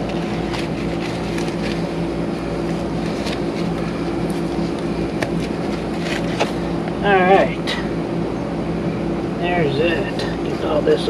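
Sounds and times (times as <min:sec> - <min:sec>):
foam insulation crackling and scraping: 0:00.0 - 0:06.6
air conditioner unit humming: 0:00.0 - 0:11.0.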